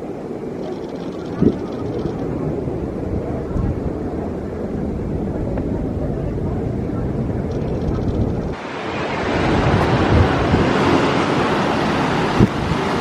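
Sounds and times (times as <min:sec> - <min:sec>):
ocean surf: 0:00.0 - 0:13.0
wind on microphone: 0:00.0 - 0:13.0.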